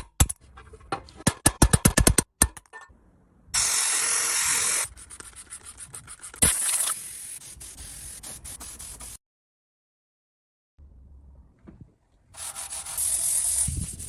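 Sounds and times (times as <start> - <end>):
short loud hissing bursts: 3.6 - 4.9.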